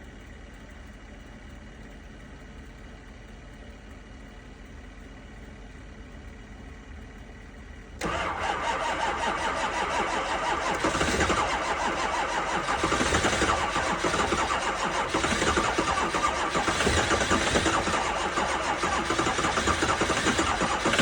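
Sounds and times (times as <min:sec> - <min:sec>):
starter cranking diesel engine: 0:05.0 - 0:21.0.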